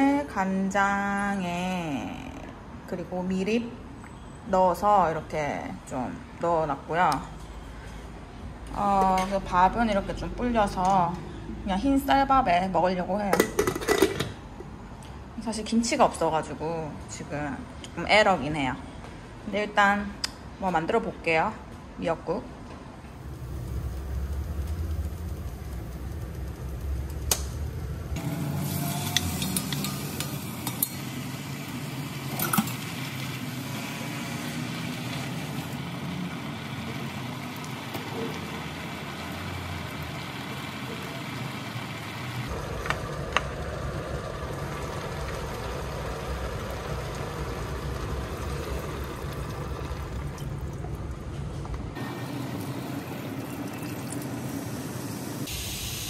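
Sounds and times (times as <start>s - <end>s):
food sizzling in oil: 28.2s - 50.3s
liquid pouring into a pot: 42.5s - 51.3s, 52.1s - 55.5s.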